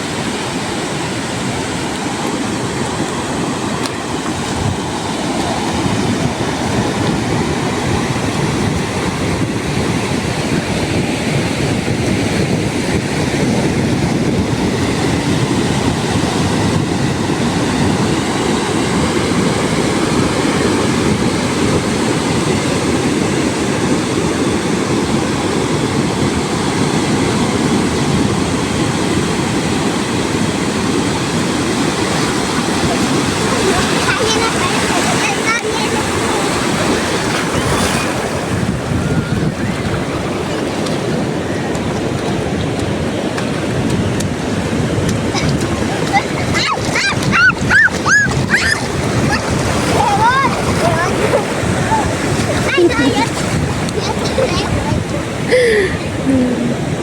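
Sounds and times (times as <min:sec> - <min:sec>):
ocean surf: 0:00.0 - 0:57.0
wind rushing: 0:30.8 - 0:57.0.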